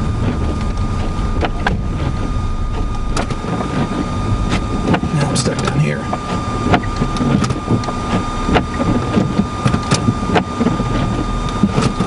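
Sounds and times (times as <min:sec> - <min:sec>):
steady high tone: 0:00.0 - 0:07.2
car engine running: 0:00.0 - 0:12.0.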